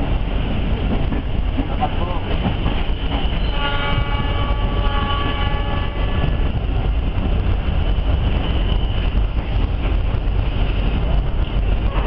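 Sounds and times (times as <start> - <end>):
train rumbling on rails: 0.0 - 12.0
train horn: 3.3 - 6.4.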